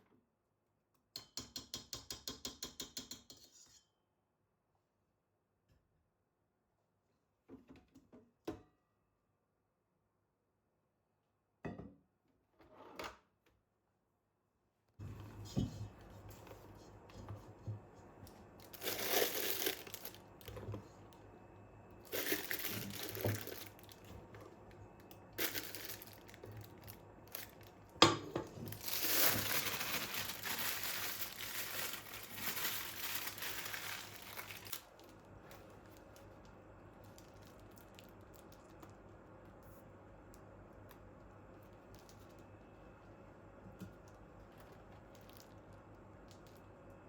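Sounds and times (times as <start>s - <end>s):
crinkling and rustling: 15.0s - 21.2s, 22.0s - 39.6s, 43.8s - 46.7s.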